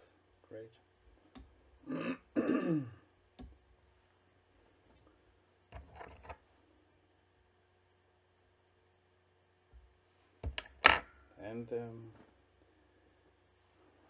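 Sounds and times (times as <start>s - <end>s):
man clearing his throat: 1.8s - 3.0s.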